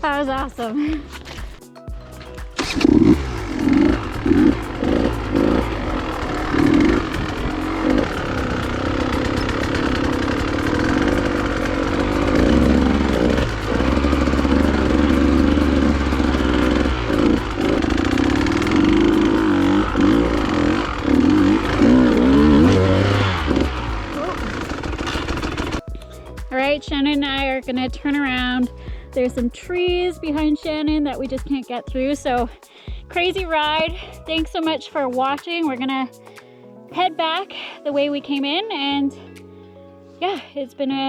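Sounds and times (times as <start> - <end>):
dirt bike engine revving: 2.6 - 25.8.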